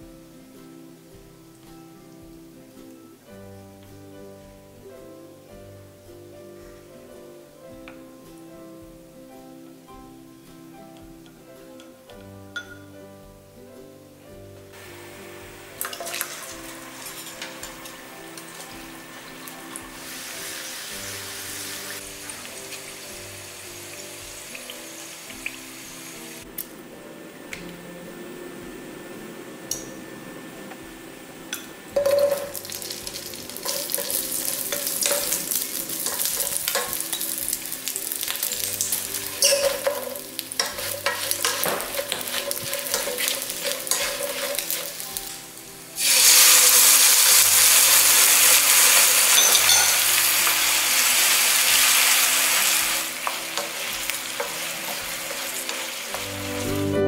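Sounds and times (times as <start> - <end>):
food sizzling in a frying pan: 0.0 - 11.9, 14.7 - 26.7, 27.8 - 57.0
wooden spatula stirring: 32.0 - 45.4.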